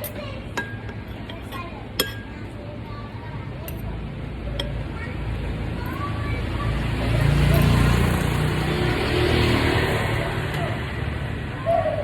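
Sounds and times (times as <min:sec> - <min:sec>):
vehicle passing: 0:05.1 - 0:12.0.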